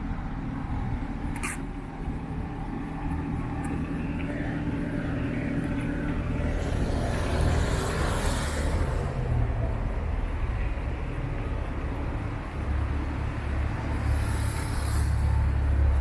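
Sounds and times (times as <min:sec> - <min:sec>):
vehicle driving past: 0:04.4 - 0:09.9.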